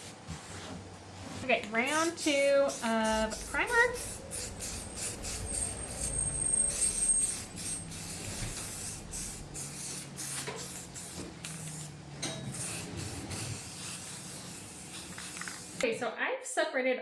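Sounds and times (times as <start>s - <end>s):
aerosol spray can hissing: 1.8s - 11.9s, 12.5s - 15.9s.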